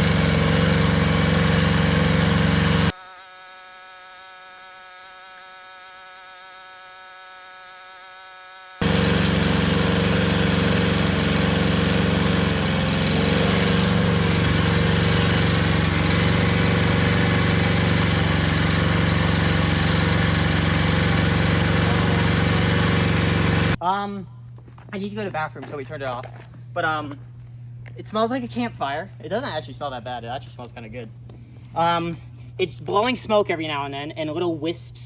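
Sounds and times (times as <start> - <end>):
lawnmower engine running: 0.0 - 23.8.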